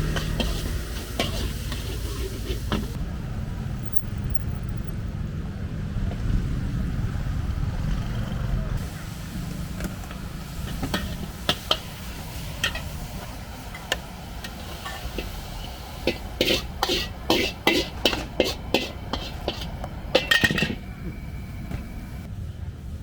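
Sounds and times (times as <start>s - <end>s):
metal utensils clanking on pans: 0.0s - 3.0s, 10.6s - 21.2s
low rumble: 2.8s - 8.8s.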